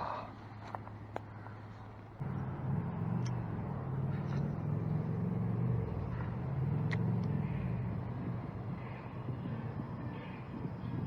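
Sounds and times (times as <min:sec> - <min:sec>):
motor engine droning: 0:02.2 - 0:11.0.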